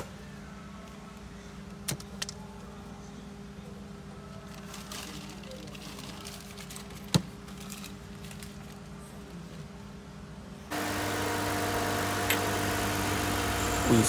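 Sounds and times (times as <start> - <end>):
car engine idling: 10.7 - 14.0.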